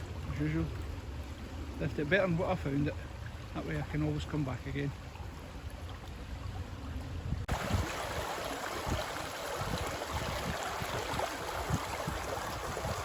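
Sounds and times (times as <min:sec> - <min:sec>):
wind rumbling on microphone: 0:05.0 - 0:13.0
river water rushing: 0:07.5 - 0:13.0.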